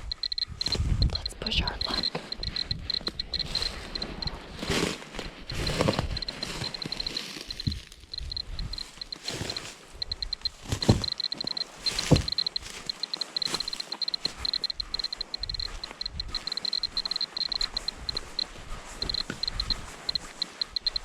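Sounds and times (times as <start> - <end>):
dosimeter beeping high chirps: 0.0 - 4.7, 5.4 - 21.0
heavy thumps: 10.8 - 12.7.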